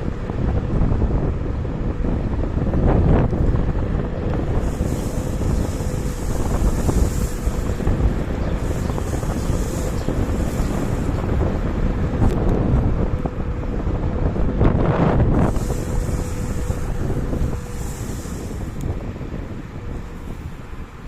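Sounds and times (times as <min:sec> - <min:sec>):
faint steady whine: 0:00.0 - 0:21.0
low road rumble: 0:00.0 - 0:21.0
wind buffeting microphone: 0:00.0 - 0:21.0
higher hiss: 0:04.6 - 0:11.4, 0:15.4 - 0:19.1.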